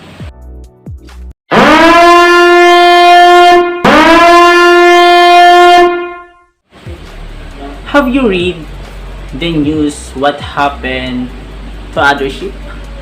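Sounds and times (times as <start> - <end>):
ship's air horn blasts: 1.5 - 6.5.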